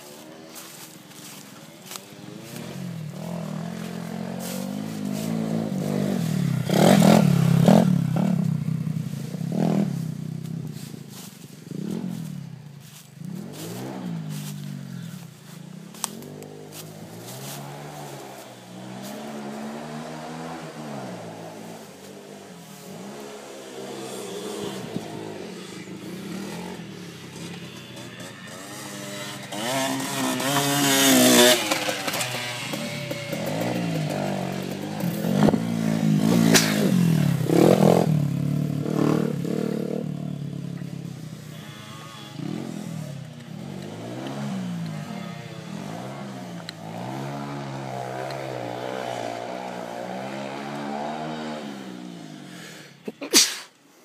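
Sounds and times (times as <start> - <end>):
pit bike engine revving: 0.0 - 53.0.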